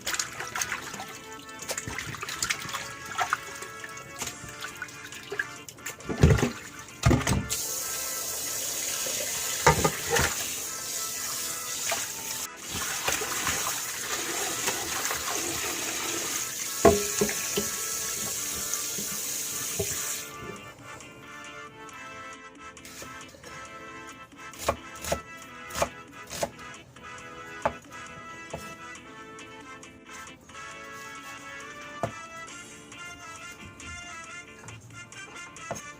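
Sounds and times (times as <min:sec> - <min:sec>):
tap water running into sink: 0:00.0 - 0:20.3.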